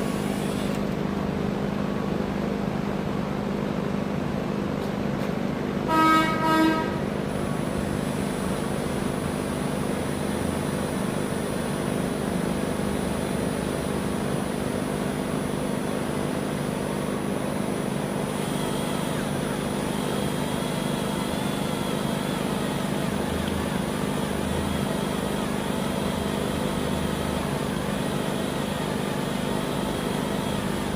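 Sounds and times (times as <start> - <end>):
machine hum: 5.5 - 30.9
short horn toots: 5.9 - 7.1.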